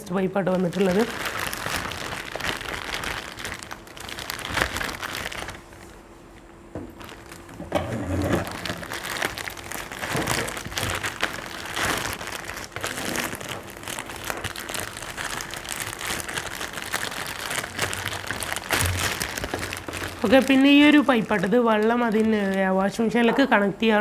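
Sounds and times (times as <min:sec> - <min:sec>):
packaging crinkling: 0:00.0 - 0:23.6.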